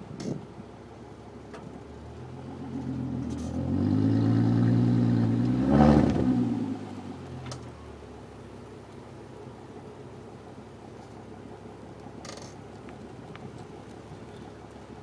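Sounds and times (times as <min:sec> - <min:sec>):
car engine revving: 0:02.4 - 0:07.3.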